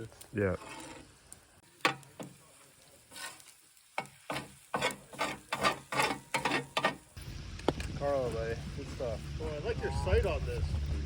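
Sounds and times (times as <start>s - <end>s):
utensil scraping food in a pan: 0.4s - 7.2s.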